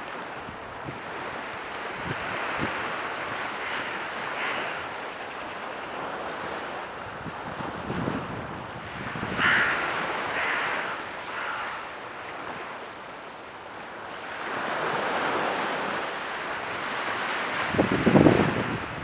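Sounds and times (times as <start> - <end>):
sea waves washing in: 0.0 - 19.0
wind on microphone: 0.3 - 12.7, 17.0 - 19.0
bird calling: 3.4 - 5.2, 8.9 - 13.0.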